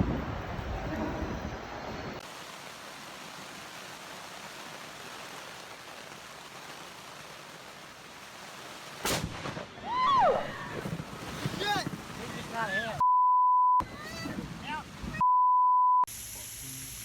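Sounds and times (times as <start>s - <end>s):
rain hissing: 0.0s - 13.0s, 16.1s - 17.0s
sharp crack: 9.0s - 10.0s.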